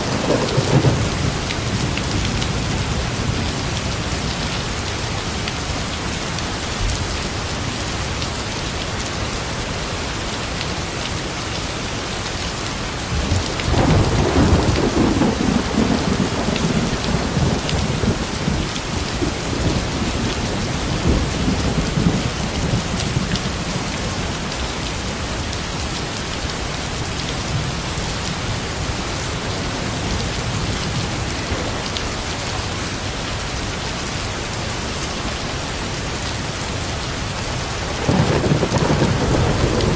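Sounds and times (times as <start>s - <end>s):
thunder rumbling: 0.0s - 4.3s, 13.1s - 24.3s, 29.7s - 32.8s, 37.8s - 39.9s
steady rain falling: 0.0s - 39.9s.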